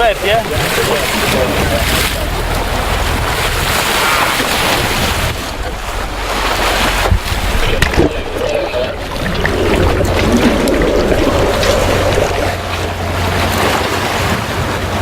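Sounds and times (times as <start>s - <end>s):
sea water washing: 0.0s - 15.0s
wind buffeting microphone: 4.6s - 15.0s
low steady rumble: 4.8s - 15.0s.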